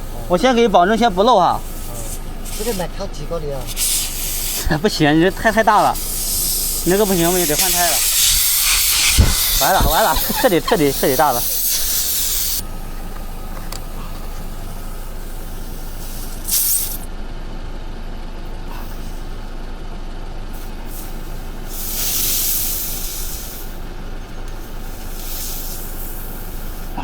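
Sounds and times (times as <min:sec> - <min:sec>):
air hissing from tyre: 0:00.0 - 0:17.1, 0:18.4 - 0:19.8, 0:20.4 - 0:27.0
steady hum: 0:00.0 - 0:27.0.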